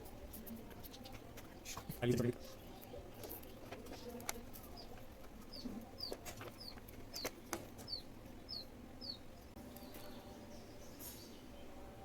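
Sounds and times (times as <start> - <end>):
bird chirping: 3.8 - 11.7.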